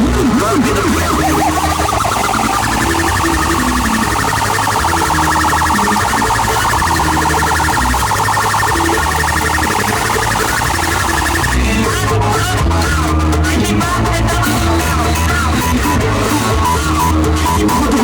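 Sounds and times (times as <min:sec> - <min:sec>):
electronic siren-like warble: 0:00.6 - 0:11.8.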